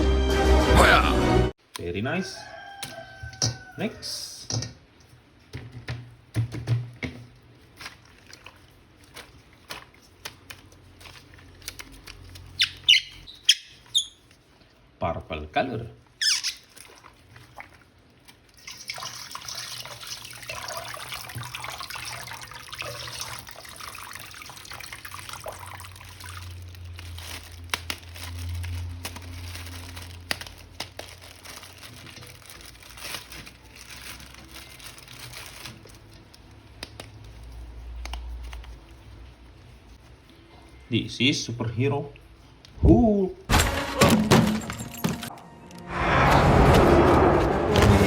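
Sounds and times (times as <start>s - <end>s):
running water splashing: 16.5s - 27.0s.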